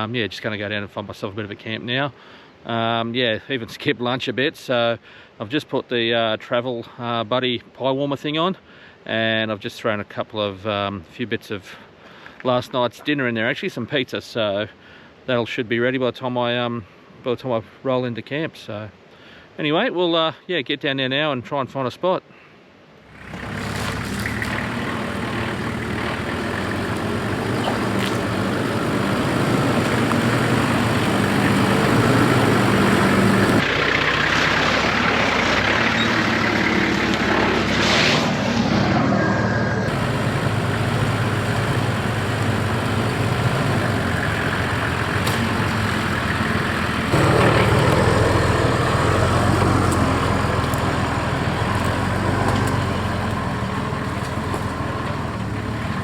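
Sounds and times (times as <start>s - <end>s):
vehicle engine hum: 23.0s - 56.0s
tyre and road noise: 23.1s - 56.0s.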